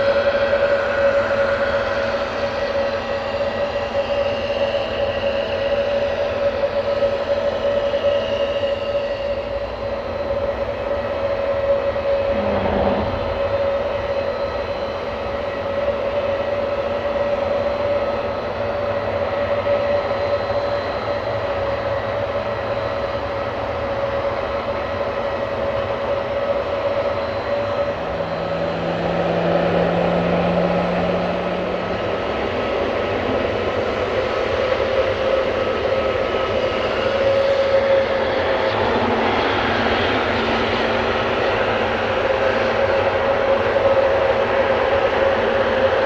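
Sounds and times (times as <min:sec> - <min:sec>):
jet engines whining: 0:00.0 - 0:46.0
low hum: 0:11.3 - 0:15.1
low rumble: 0:11.7 - 0:14.5.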